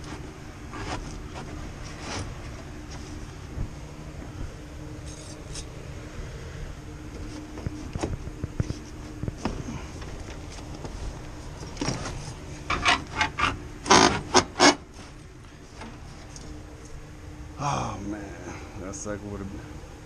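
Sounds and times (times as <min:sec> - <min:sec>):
rasping scraping strokes: 0:00.0 - 0:02.5.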